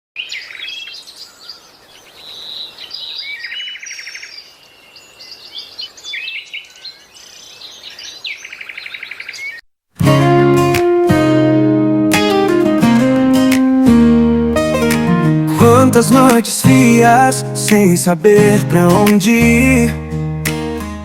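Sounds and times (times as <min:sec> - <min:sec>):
bird trills: 0:00.2 - 0:09.6
songbirds chirping and singing: 0:00.2 - 0:09.6, 0:15.5 - 0:20.2
loud acoustic guitar music: 0:10.0 - 0:21.0.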